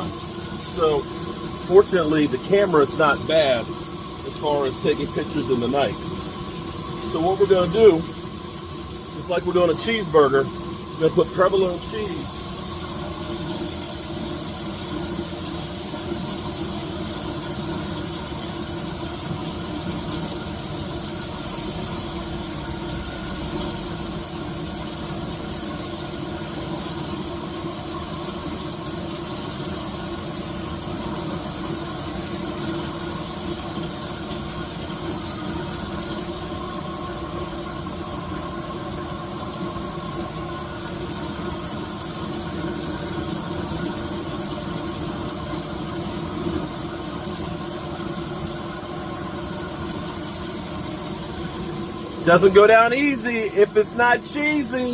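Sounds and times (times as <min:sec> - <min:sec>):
even hiss: 0:00.0 - 0:28.8, 0:49.7 - 0:54.9.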